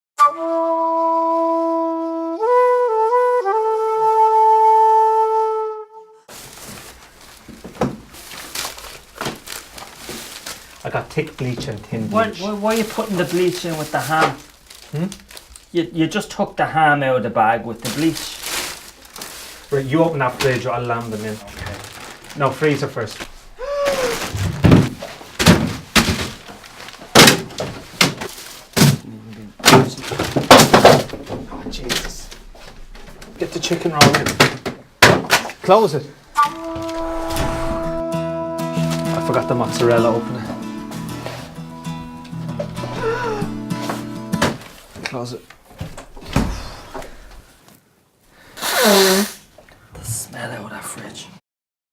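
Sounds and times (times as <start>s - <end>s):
flute-like music notes: 0.2s - 6.3s, 36.3s - 44.4s
rustling: 6.3s - 15.9s, 17.6s - 34.6s, 39.8s - 47.8s
knocks and thuds in fridge: 7.7s - 8.1s, 24.3s - 26.5s, 27.1s - 32.0s, 34.0s - 35.4s, 44.3s - 44.6s.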